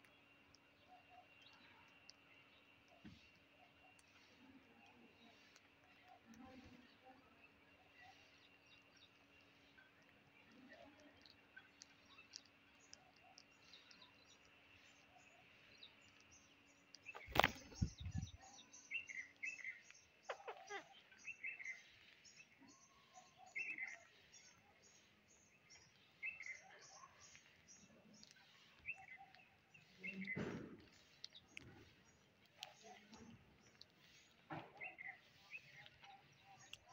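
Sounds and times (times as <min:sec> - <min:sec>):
brief rustle: 0:17.1 - 0:18.3.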